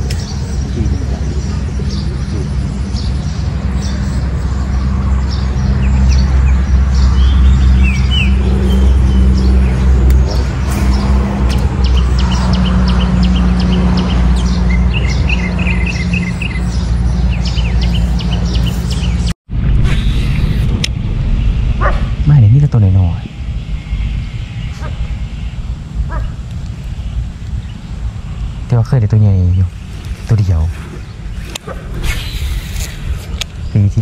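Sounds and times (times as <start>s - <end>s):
birds chirping and calling: 0.0s - 19.3s, 19.9s - 34.0s
loud steady low hum: 0.0s - 34.0s.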